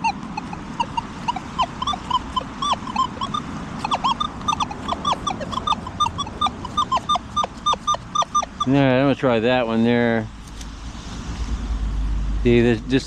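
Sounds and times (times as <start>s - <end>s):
metal detector chirps: 0.0s - 8.8s.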